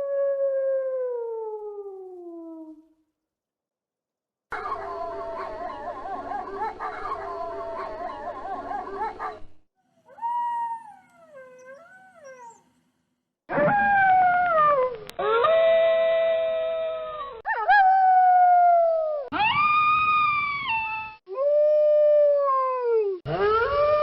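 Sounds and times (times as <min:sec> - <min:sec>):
wolves howling: 0:04.5 - 0:09.4.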